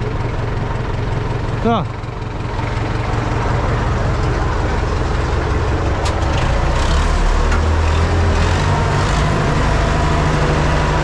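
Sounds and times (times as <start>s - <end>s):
tractor diesel engine droning: 0.0s - 11.0s.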